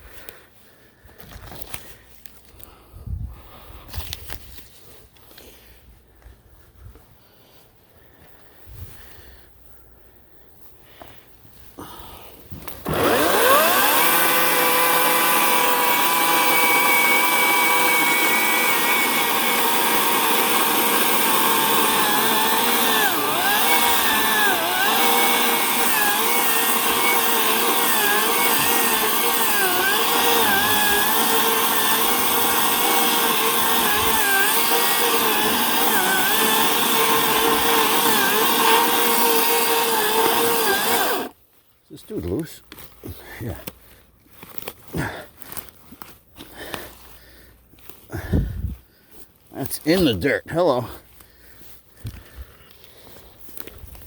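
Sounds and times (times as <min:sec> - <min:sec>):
electric chainsaw cutting wood: 0:12.6 - 0:41.4.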